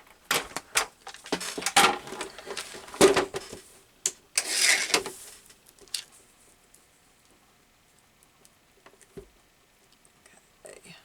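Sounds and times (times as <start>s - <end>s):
paper rustling and sliding: 0.3s - 3.7s, 4.4s - 5.5s.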